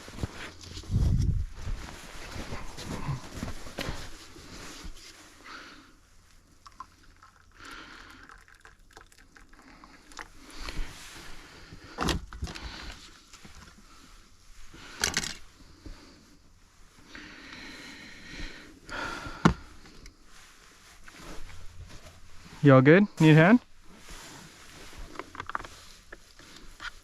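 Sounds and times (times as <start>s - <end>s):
rustling: 0.0s - 5.4s.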